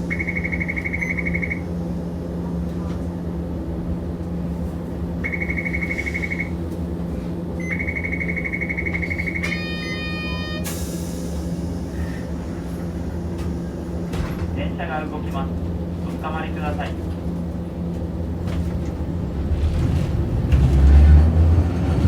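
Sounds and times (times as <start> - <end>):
tram low hum: 0.0 - 22.0
harsh buzzer tone: 5.2 - 6.5, 7.7 - 10.7.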